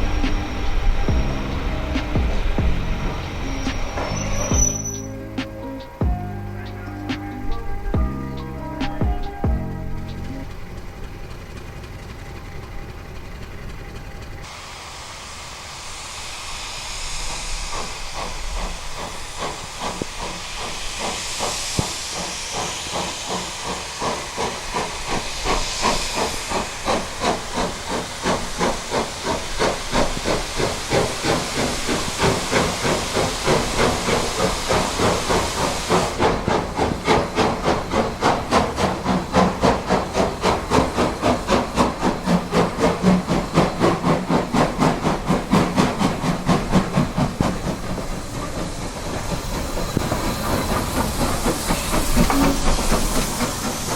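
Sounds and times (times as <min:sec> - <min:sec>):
music: 0:00.0 - 0:10.7
steam hissing: 0:00.0 - 0:53.9
steam locomotive exhaust chuffs: 0:00.0 - 0:53.9.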